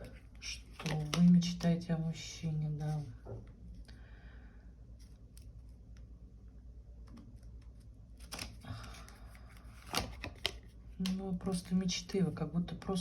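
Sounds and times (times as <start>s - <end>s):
cards rustling while sliding: 7.7s - 10.7s
cards clicking and tapping: 9.8s - 11.2s.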